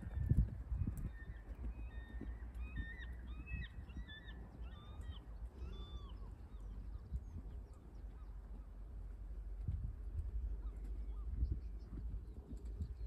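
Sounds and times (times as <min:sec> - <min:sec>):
steady low rumble: 0:00.0 - 0:13.0
bird calling: 0:01.1 - 0:07.1.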